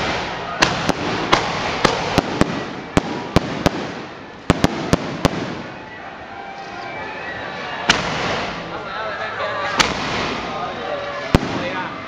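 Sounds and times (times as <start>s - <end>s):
firework bangs: 0.0s - 5.8s, 7.9s - 8.7s, 9.8s - 10.6s, 11.3s - 11.9s
crackling rush of fireworks: 0.0s - 6.3s, 7.9s - 8.9s, 9.7s - 12.0s.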